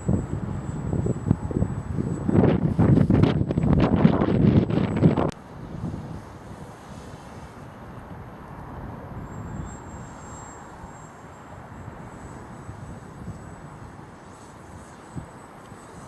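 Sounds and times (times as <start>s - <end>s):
model plane electric motor hum: 0.0s - 5.4s
faint high whine: 0.0s - 16.0s
wind buffeting microphone: 0.0s - 16.0s.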